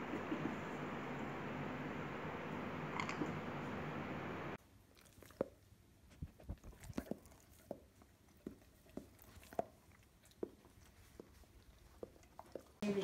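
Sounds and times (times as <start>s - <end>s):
dog licking: 6.3s - 12.9s.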